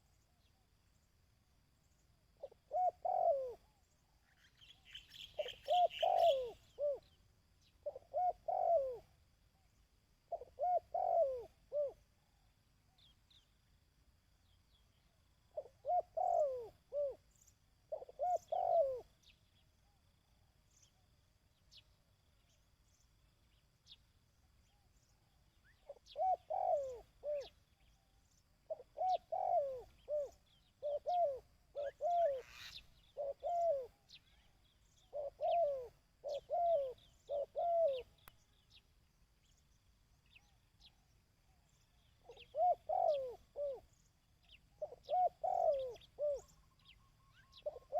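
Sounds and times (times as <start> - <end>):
dove cooing: 2.4 - 4.4, 5.2 - 9.2, 10.3 - 12.1, 15.5 - 19.3, 25.7 - 27.9, 28.6 - 38.3, 41.7 - 47.9.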